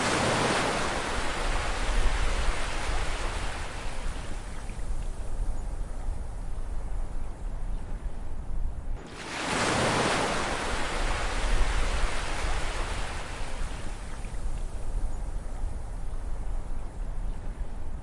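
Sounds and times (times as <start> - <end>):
ocean wave breaking on shore: 0.0 - 4.2, 9.0 - 14.1
low rumble of surf: 0.0 - 18.0.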